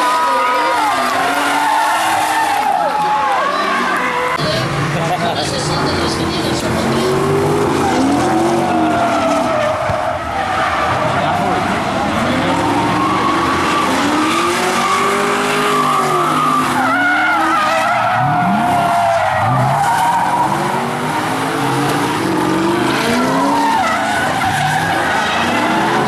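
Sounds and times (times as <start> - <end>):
car engines revving: 0.0 - 26.0
tyres squealing: 5.7 - 26.0.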